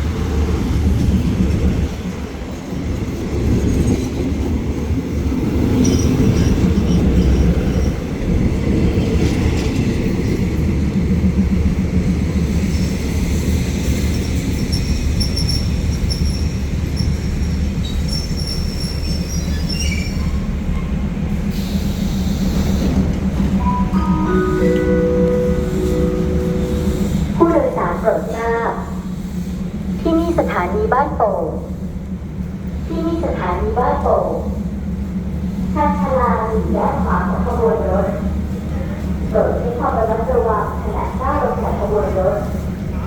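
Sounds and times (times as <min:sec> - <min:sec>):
train rumbling over rails: 0:00.0 - 0:43.0
wheel and brake squeal: 0:14.7 - 0:20.5
chime over public address: 0:23.6 - 0:27.2.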